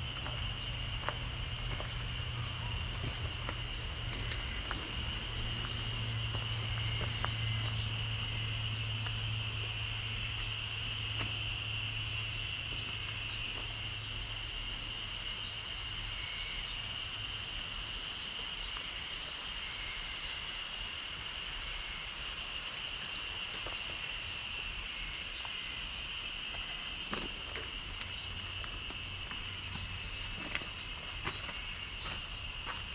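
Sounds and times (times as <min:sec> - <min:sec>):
low steady hum: 0:00.0 - 0:20.0
high-pitched insect chorus: 0:00.0 - 0:32.9.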